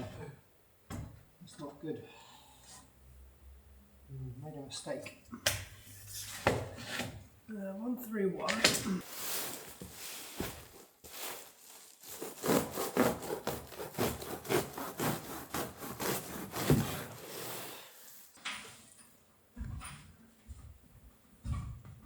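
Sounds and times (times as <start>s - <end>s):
hand tool strokes on wood: 9.0s - 18.3s.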